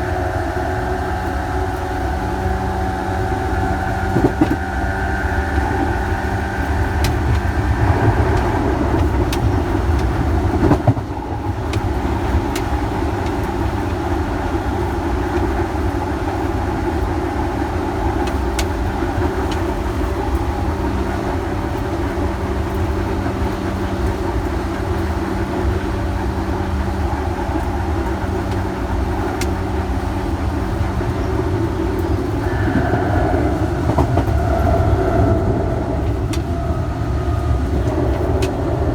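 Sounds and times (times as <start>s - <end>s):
train wheels rumbling: 0.0s - 38.9s
steady hum: 27.4s - 38.9s
motor whine: 30.3s - 38.9s.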